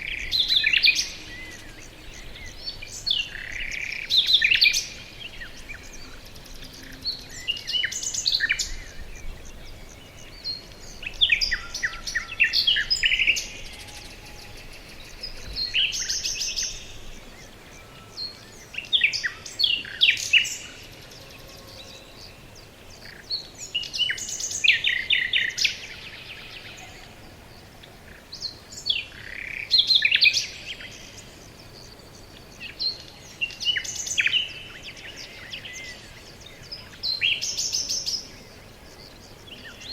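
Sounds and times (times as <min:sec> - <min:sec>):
faint outdoor hiss: 0:00.0 - 0:39.9
songbirds singing: 0:00.0 - 0:39.9.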